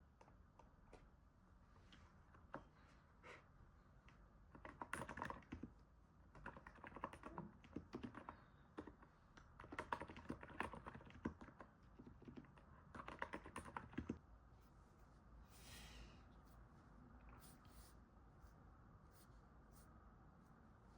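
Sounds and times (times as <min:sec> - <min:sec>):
soft keyboard typing: 0:04.0 - 0:14.3.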